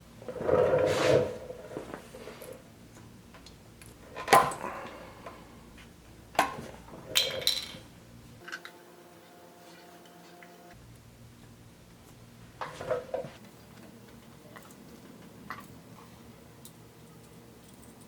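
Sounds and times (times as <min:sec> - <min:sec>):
metal parts rattling: 0:07.0 - 0:07.8.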